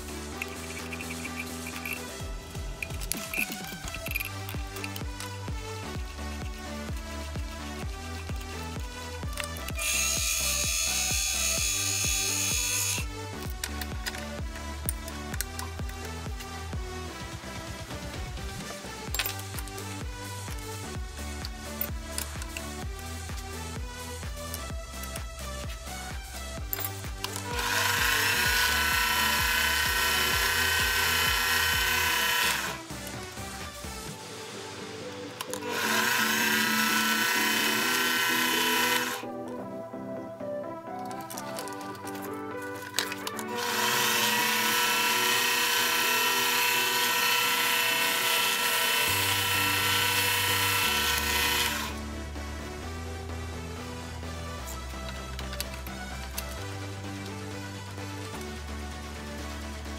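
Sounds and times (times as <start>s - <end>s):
background music: 0.0s - 59.9s
lathe spindle whine: 27.5s - 32.8s, 35.6s - 39.2s, 43.5s - 52.0s.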